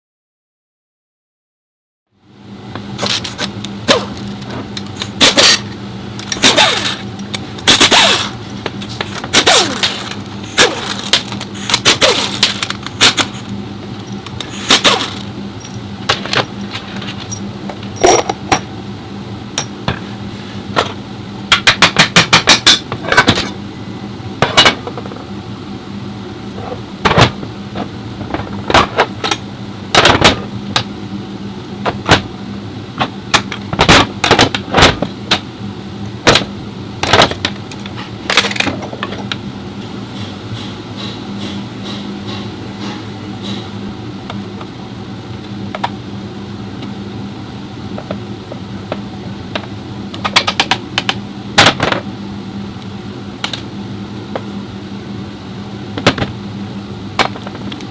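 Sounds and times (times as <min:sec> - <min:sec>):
steady low hum: 0:02.1 - 0:57.9
metal tools clanking: 0:03.0 - 0:13.4, 0:14.0 - 0:18.7.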